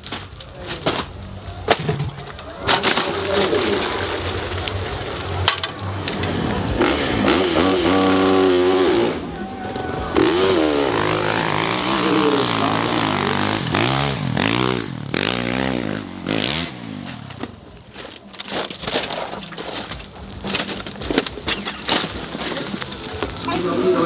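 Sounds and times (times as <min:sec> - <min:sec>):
dirt bike engine revving: 0:02.6 - 0:17.6.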